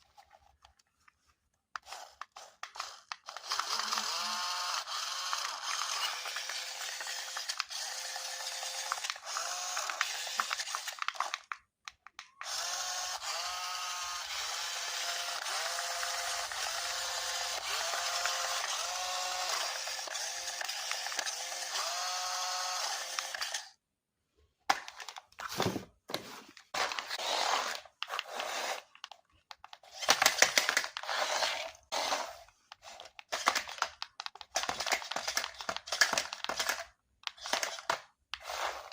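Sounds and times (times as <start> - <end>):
small electric motor whirring: 1.8 - 11.3, 12.4 - 23.8, 26.8 - 28.9, 29.8 - 33.6
handling noises: 24.6 - 38.9.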